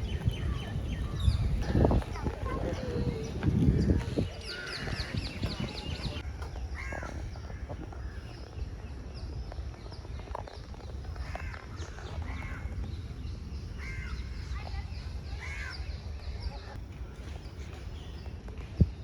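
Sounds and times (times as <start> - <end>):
steady low rumble: 0.0 - 9.9
birds chirping: 0.0 - 19.0.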